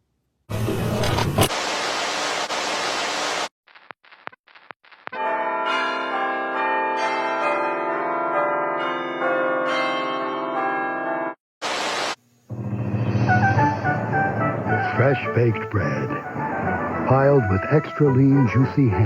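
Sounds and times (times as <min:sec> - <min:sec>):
videotape static hiss: 0:00.6 - 0:05.2, 0:11.6 - 0:12.7.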